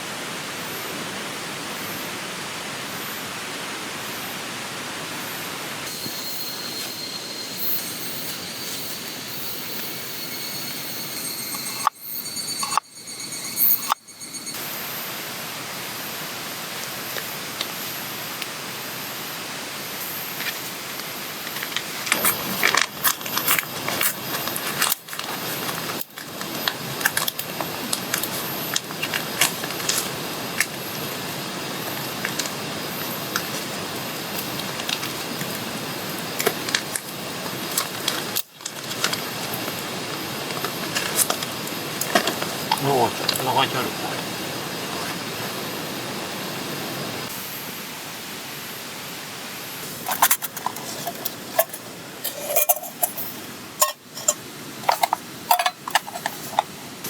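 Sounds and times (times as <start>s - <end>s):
flowing water hiss: 0.0s - 57.0s
camp gear clinking: 5.9s - 14.6s, 20.4s - 45.6s, 49.8s - 56.8s.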